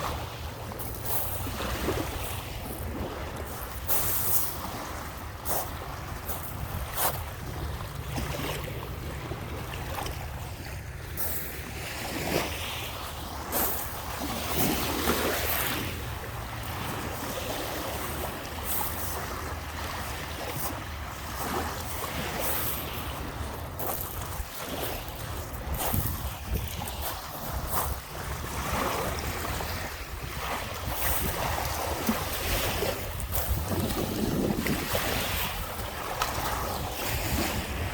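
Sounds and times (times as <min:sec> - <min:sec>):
lake waves washing onto shore: 0:00.0 - 0:37.9
wind buffeting microphone: 0:00.0 - 0:37.9.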